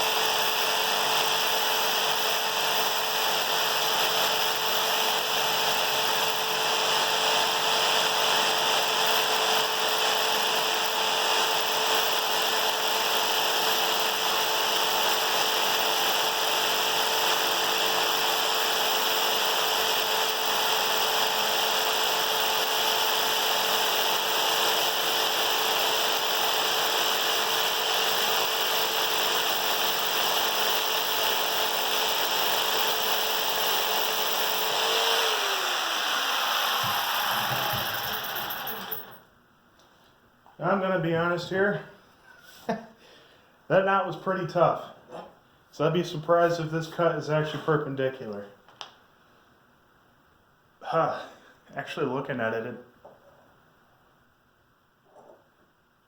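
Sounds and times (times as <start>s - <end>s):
jigsaw cutting wood: 0.0s - 39.2s.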